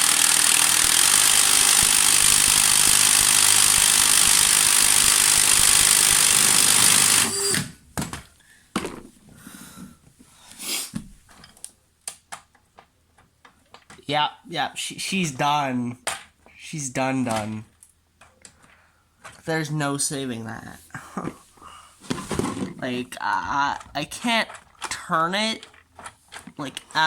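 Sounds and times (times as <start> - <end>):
drill spinning engine model: 0.0 - 7.8.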